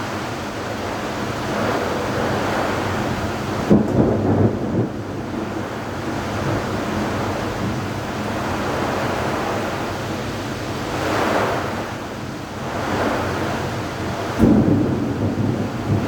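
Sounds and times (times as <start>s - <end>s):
rain: 0.0s - 16.0s
wind: 0.0s - 16.0s
sharp thunder crack: 14.3s - 16.0s.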